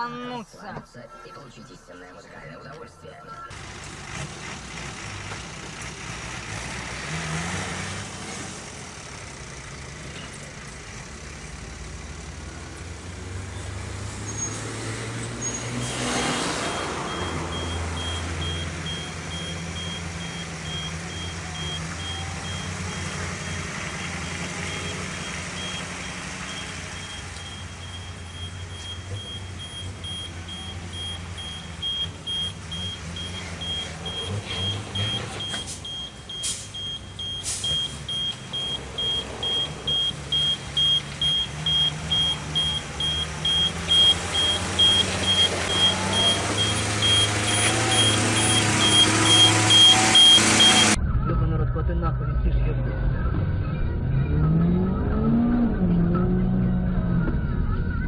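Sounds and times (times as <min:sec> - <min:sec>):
reversing alarm beeping: 0:00.0 - 0:03.6, 0:16.6 - 0:51.0
heavy vehicle engine running: 0:03.0 - 0:58.0.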